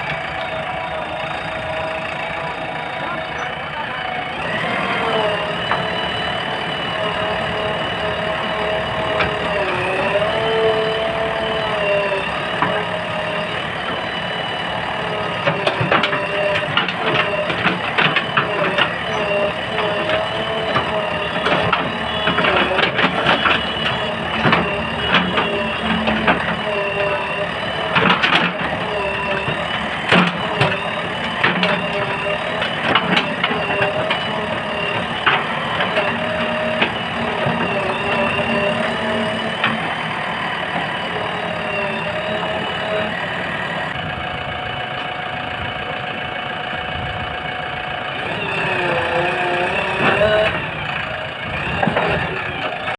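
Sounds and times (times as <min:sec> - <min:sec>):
backhoe loader engine whine: 0:00.0 - 0:52.9
metal clanks and knocks: 0:05.2 - 0:44.0.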